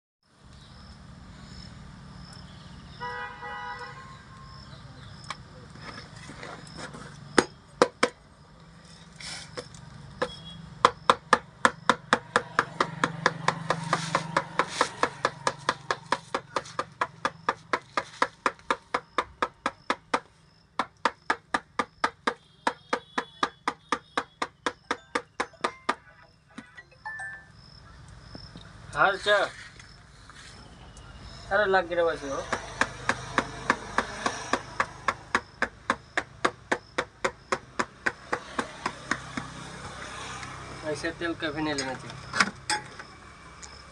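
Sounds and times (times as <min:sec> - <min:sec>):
hammer strikes: 0:10.2 - 0:27.4, 0:32.4 - 0:39.5.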